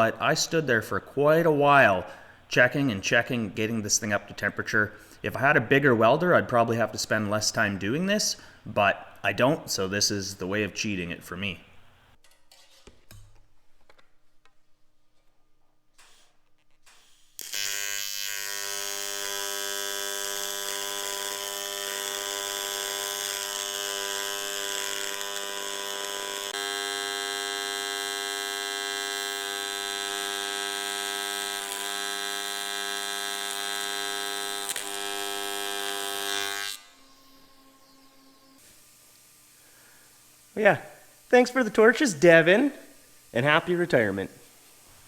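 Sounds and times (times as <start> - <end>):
welding arc buzzing: 16.8 - 45.0.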